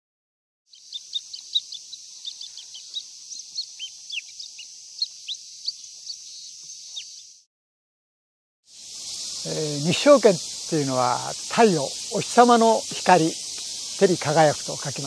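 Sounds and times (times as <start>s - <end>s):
steady high hiss: 0.7s - 7.4s, 8.7s - 15.0s
birds chirping: 0.7s - 7.5s, 8.8s - 15.0s.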